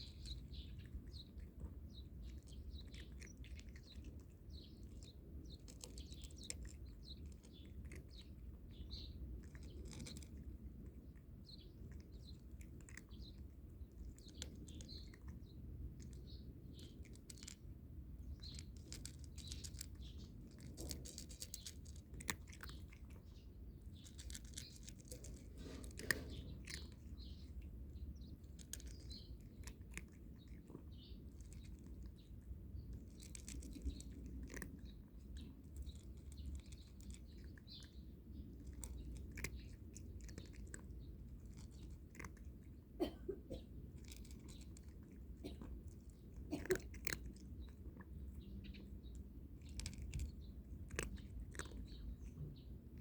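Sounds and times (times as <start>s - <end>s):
cat crunching dry kibble: 0.0s - 43.0s, 43.6s - 53.0s
birds chirping: 0.0s - 53.0s.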